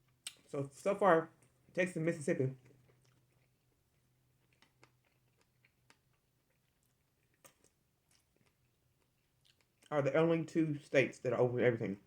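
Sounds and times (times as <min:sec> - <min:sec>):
person chewing: 0:02.6 - 0:09.9.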